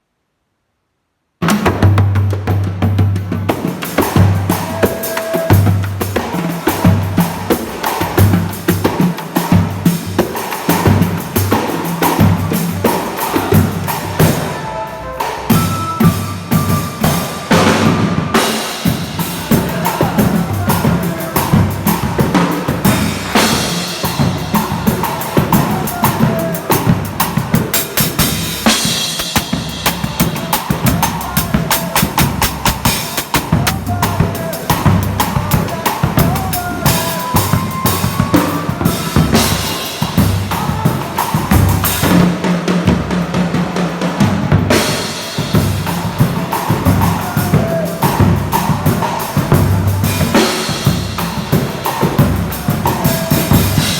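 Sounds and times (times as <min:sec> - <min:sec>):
live band playing: 0:03.2 - 0:53.9
snare drum hits: 0:03.5 - 0:42.4.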